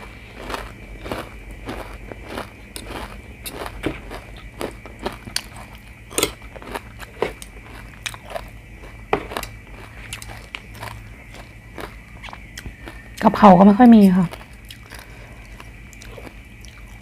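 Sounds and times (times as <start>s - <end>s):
person chewing food: 0.0s - 13.3s, 14.0s - 17.0s
sharp clicks and crunches: 0.4s - 8.5s.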